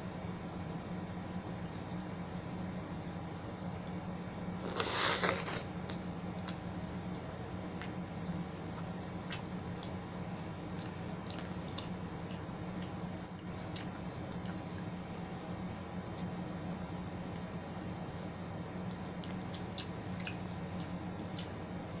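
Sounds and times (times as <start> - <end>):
steady low hum: 0.0 - 22.0
chewing: 3.8 - 16.4, 17.3 - 22.0
crunchy bite into food: 4.6 - 5.7.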